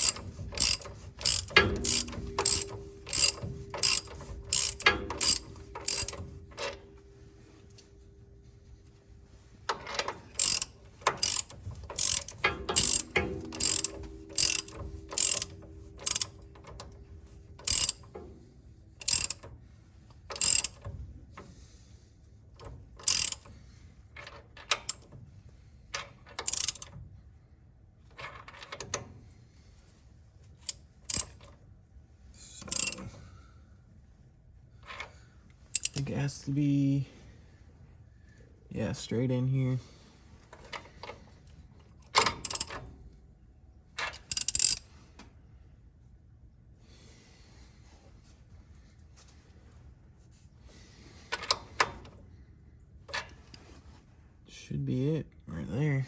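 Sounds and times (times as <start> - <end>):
socket ratchet clicking: 0.0 - 6.8, 9.8 - 17.0, 17.6 - 18.2, 19.0 - 19.5, 20.2 - 20.9, 23.0 - 23.5, 24.2 - 25.1, 26.3 - 27.0, 30.6 - 31.4, 32.7 - 33.0, 35.6 - 36.1, 42.2 - 42.8, 44.0 - 44.8.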